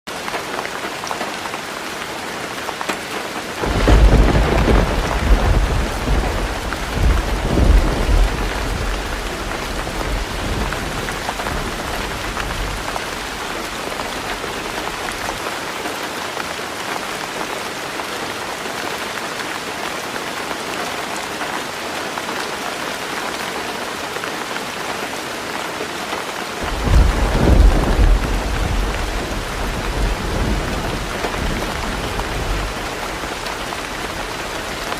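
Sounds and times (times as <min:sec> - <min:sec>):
heavy rain on a tin roof: 0:00.1 - 0:34.9
thunder rolling: 0:03.6 - 0:15.2, 0:26.6 - 0:34.9.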